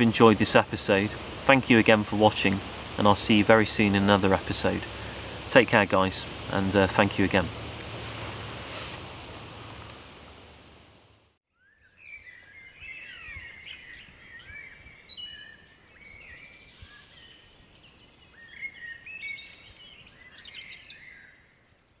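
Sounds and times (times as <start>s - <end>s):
outdoor hiss: 0.0s - 11.4s
songbirds singing: 11.5s - 22.0s.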